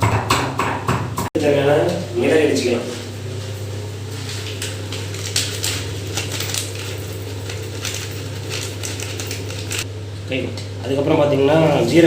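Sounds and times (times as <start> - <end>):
peppercorns being pounded: 0.0 - 1.3
steady low hum: 1.4 - 12.0.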